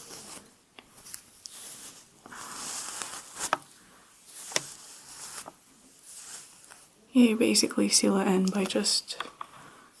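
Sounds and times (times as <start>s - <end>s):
comb swishing through hair: 1.1s - 6.9s.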